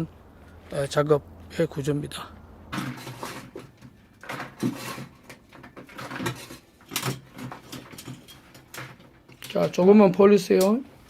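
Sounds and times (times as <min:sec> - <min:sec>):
knocks and clatter: 0:02.7 - 0:09.8.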